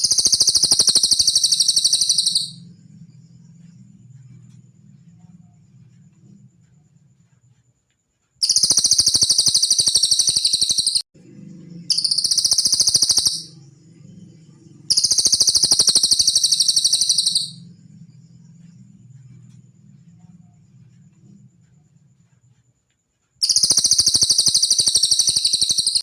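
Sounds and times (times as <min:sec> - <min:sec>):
songbird fast trilling: 0:00.0 - 0:02.6, 0:08.4 - 0:11.0, 0:11.9 - 0:13.6, 0:14.9 - 0:17.6, 0:23.4 - 0:26.0
faint low hum: 0:00.0 - 0:09.2, 0:11.2 - 0:25.2.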